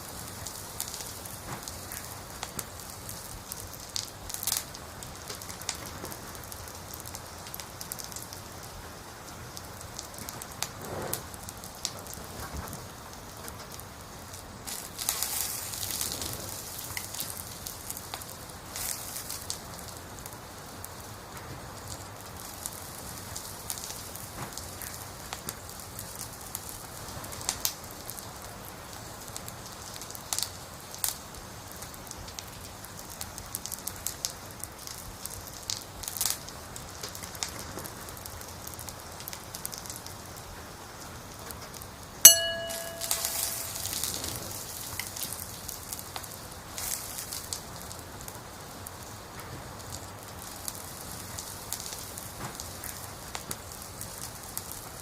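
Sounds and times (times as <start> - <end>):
burning logs popping: 0.0 - 55.0
wood fire crackling: 0.0 - 55.0
bell-like timer chime: 42.3 - 44.1.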